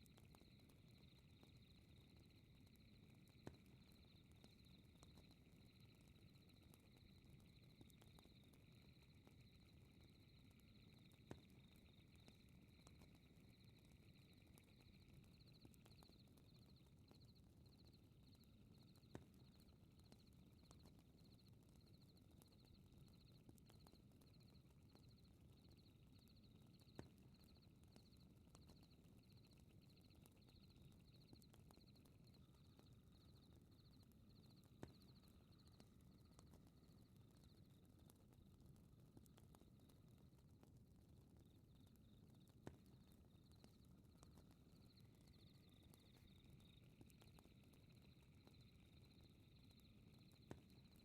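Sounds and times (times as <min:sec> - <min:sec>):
crickets chirping: 0:00.1 - 0:17.8, 0:28.8 - 0:37.8, 0:42.9 - 0:51.0.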